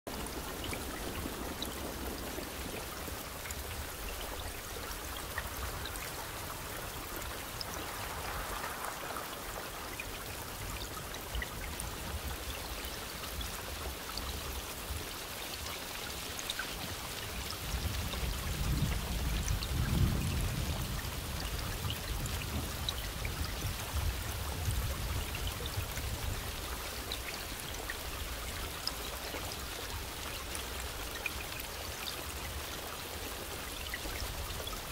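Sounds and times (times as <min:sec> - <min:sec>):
steady rain falling: 0:00.0 - 0:34.9
low roll of thunder: 0:00.2 - 0:04.6, 0:17.6 - 0:26.7.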